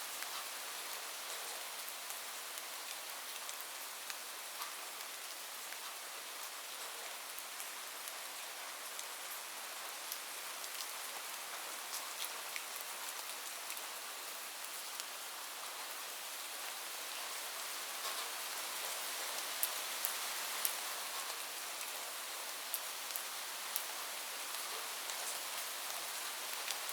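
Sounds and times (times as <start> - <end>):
heavy rain on a roof: 0.0 - 26.9.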